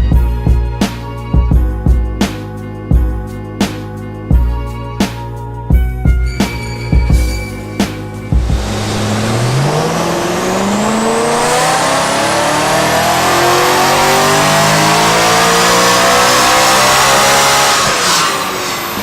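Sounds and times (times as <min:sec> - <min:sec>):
car engine at full throttle: 0:07.9 - 0:19.0.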